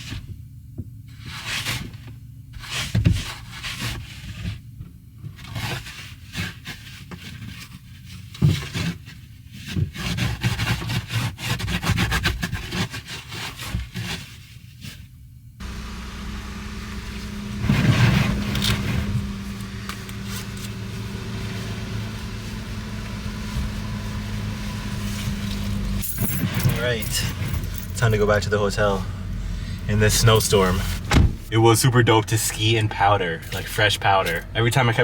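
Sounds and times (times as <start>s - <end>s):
plastic scraping with rustling: 1.1s - 16.0s
car engine humming: 15.6s - 35.0s.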